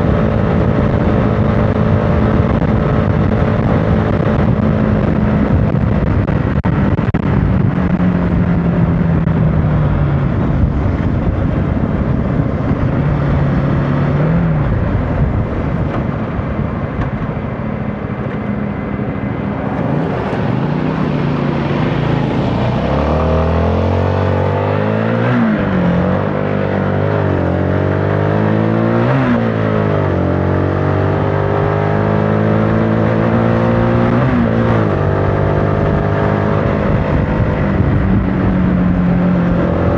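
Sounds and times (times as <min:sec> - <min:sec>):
motorcycle engine running: 0:00.0 - 0:24.6
wind rush on microphone: 0:00.0 - 0:39.9.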